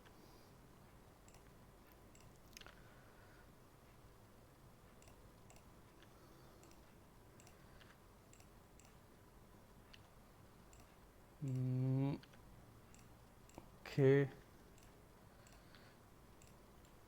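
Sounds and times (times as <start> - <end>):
computer mouse and keyboard clicks: 1.3 - 2.9, 4.9 - 9.0, 9.8 - 13.8, 14.7 - 17.0
man humming: 11.4 - 12.2.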